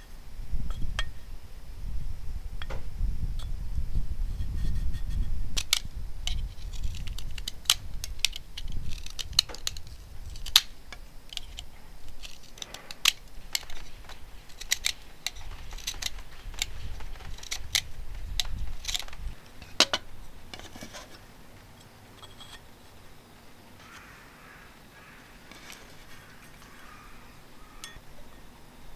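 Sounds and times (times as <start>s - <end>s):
small hard objects clicking: 5.5s - 21.1s, 25.4s - 27.0s.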